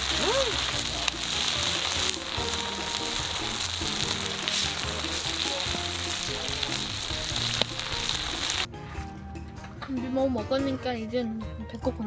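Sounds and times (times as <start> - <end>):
batter sizzling in a pan: 0.0 - 8.7
background music: 0.0 - 12.0.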